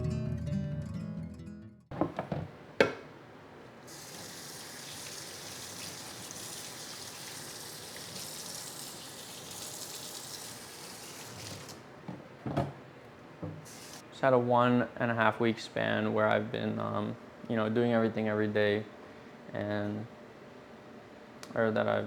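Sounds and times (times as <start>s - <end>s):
tap running into sink: 11.1s - 11.8s.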